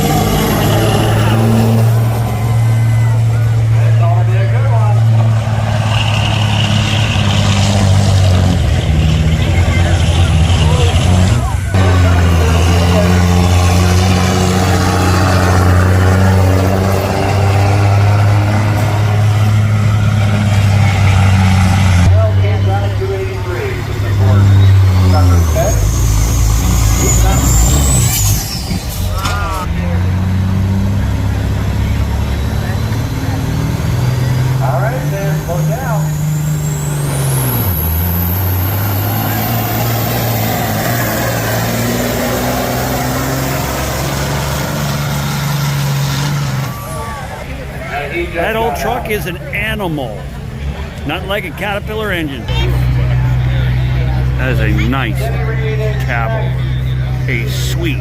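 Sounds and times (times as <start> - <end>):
truck engine at high revs: 0.0 - 58.0
high whistle: 25.5 - 29.2.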